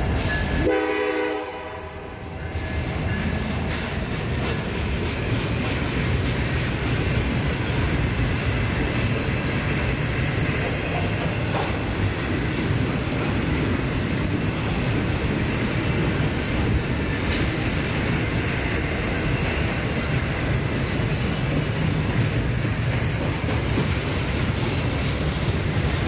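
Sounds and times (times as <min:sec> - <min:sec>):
model train running: 0:02.4 - 0:26.0.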